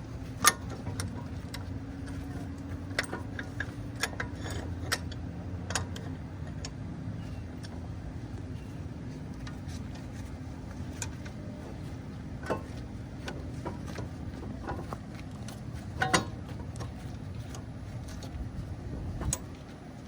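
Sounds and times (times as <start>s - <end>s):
steady low hum: 0.0s - 20.0s
metal clicks of hand tools: 0.4s - 6.8s, 12.4s - 18.4s.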